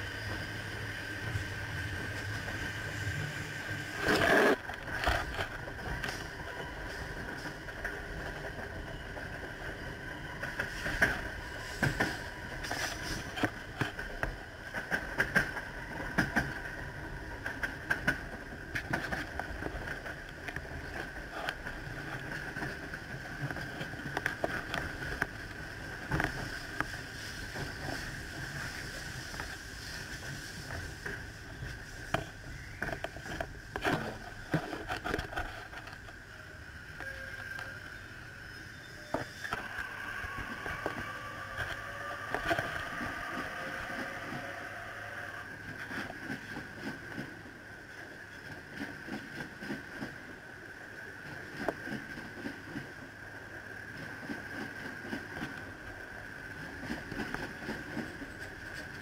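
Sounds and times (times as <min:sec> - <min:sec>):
passing train whine: 0:00.0 - 0:59.0
train interior rumble and whine: 0:00.0 - 0:59.0
wheels clunking over rail joints: 0:30.3 - 0:36.2.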